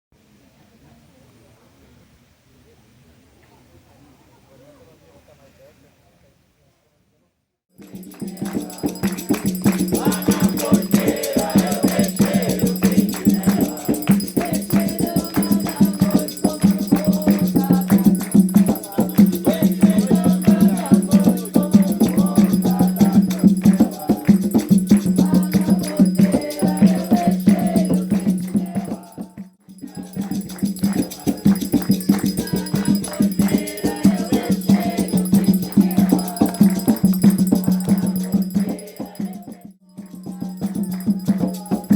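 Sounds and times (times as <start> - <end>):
rattle shaking: 7.8 - 41.9
group of voices chanting: 8.3 - 24.5, 25.2 - 37.2.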